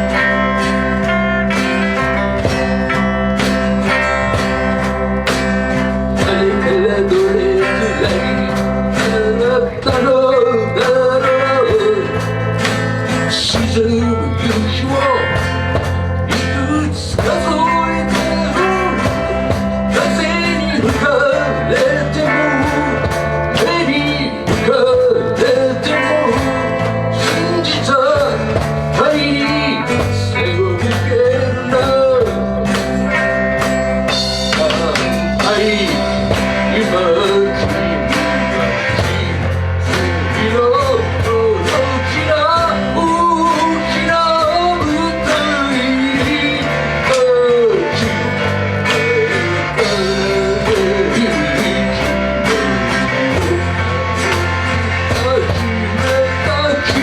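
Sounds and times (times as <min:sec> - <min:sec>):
person singing: 0:00.0 - 0:57.0
rock band playing a ballad: 0:00.0 - 0:57.0.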